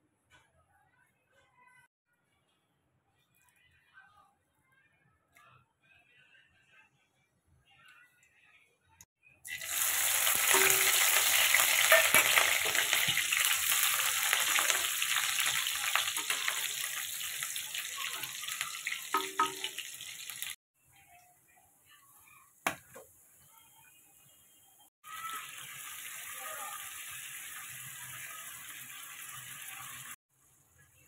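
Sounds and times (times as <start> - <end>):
chillies sizzling in hot oil: 9.4 - 20.6, 25.0 - 31.0.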